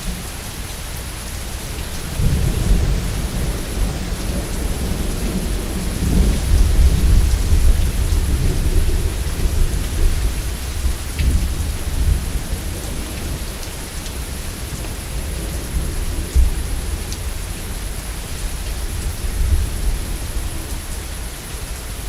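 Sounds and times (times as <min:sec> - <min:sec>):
heavy rain: 0:00.0 - 0:22.0
rolling thunder: 0:02.0 - 0:13.5.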